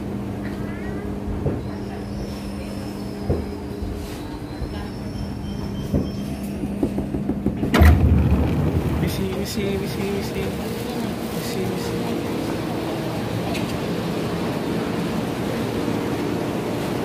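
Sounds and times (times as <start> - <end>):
electric train hum: 0.0 - 17.0
train doors opening: 0.4 - 17.0
faint train squeals: 0.5 - 6.9
knocks: 5.9 - 9.5.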